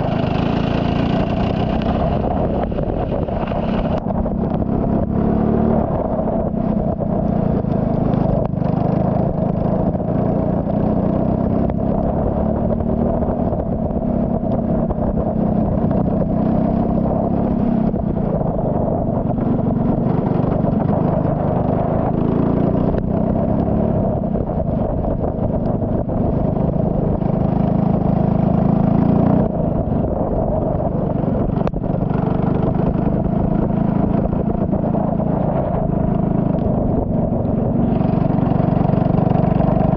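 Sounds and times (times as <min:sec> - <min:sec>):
race car engine running hard: 0:00.0 - 0:10.7.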